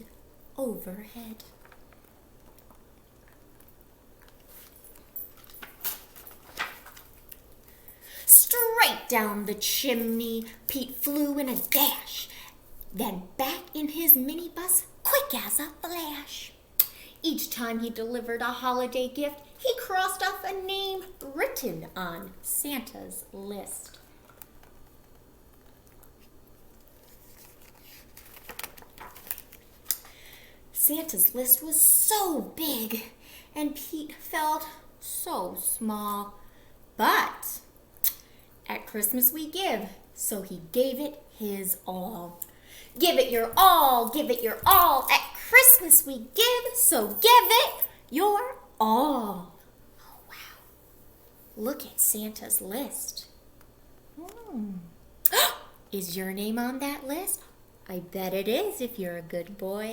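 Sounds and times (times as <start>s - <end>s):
book pages rustling: 4.2s - 7.5s, 24.2s - 30.1s.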